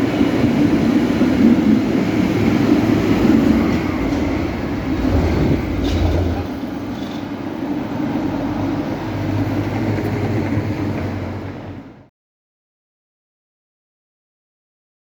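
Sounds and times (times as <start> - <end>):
tram rumbling on rails: 0.0 - 12.1
tram clicks: 2.4 - 8.4.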